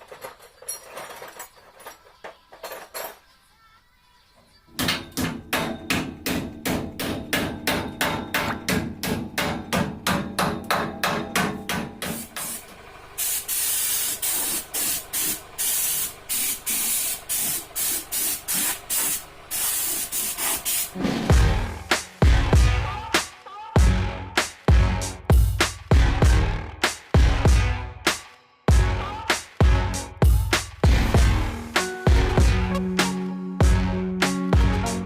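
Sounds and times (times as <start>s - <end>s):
hiss: 12.0s - 12.6s, 13.2s - 21.0s.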